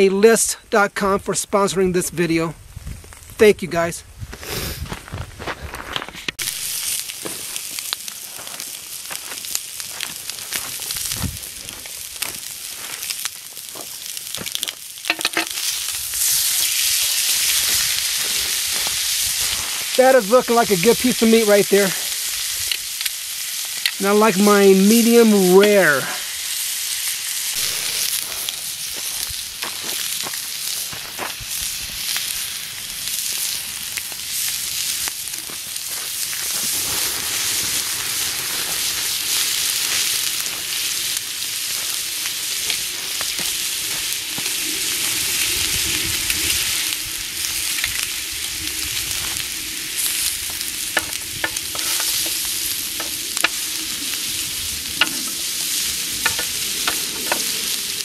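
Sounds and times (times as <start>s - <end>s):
spattering fat crackling: 5.2s - 58.0s
steak sizzling: 6.4s - 58.0s.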